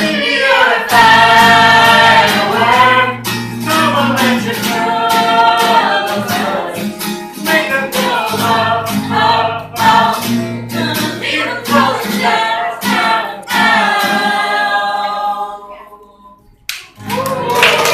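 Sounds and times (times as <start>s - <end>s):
person singing: 0.0s - 6.8s
instrumental accompaniment: 0.0s - 14.9s.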